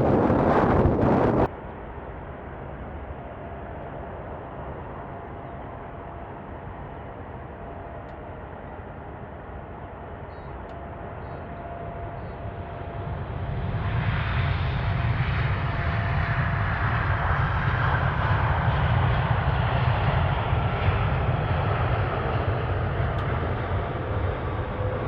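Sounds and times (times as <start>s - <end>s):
engine whine sliding down: 0.0s - 1.5s
airliner engines passing: 0.0s - 25.0s.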